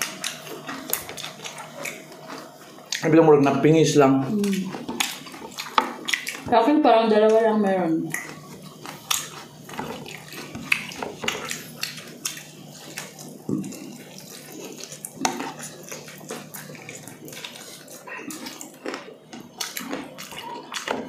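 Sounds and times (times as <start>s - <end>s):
wet chewing and lip smacking: 0.0s - 3.1s, 4.3s - 6.5s, 8.1s - 21.0s.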